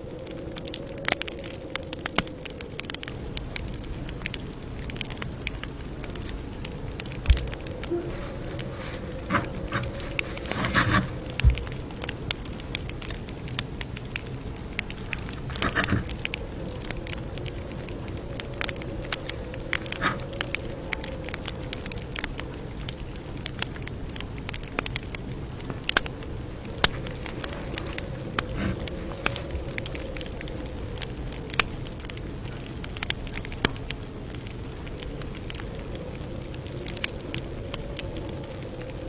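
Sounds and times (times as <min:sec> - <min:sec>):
campfire crackling: 0:00.0 - 0:39.0.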